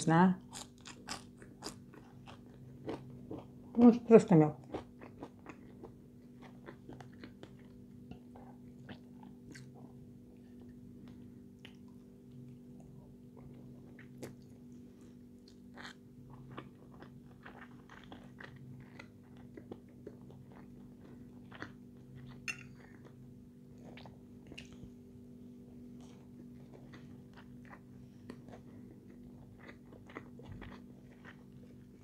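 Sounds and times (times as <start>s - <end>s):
steady low hum: 0.0s - 32.0s
chewing and mouth smacks: 4.7s - 9.9s, 10.6s - 14.6s, 15.4s - 23.2s, 23.8s - 24.8s, 26.0s - 32.0s.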